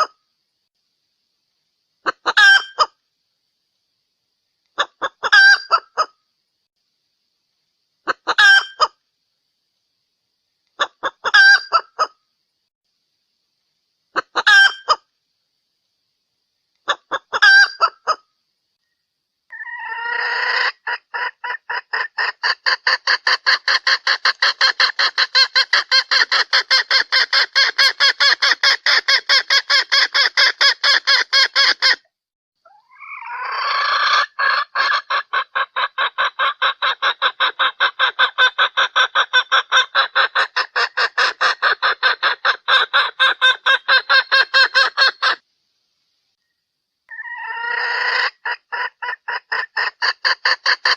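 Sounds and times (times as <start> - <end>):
hen clucking rapidly: 2.0 - 2.9, 4.8 - 6.1, 8.1 - 9.0, 10.8 - 12.1, 14.2 - 15.0, 16.8 - 18.2, 19.5 - 32.0, 32.7 - 45.4, 47.1 - 50.9.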